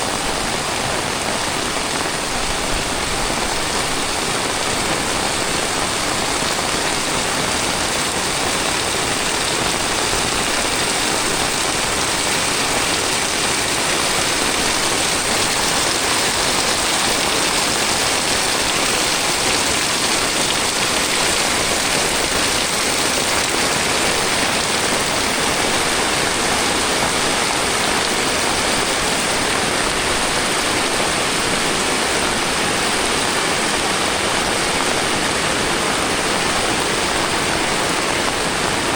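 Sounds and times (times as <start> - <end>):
heavy rain downpour: 0.0 - 38.9.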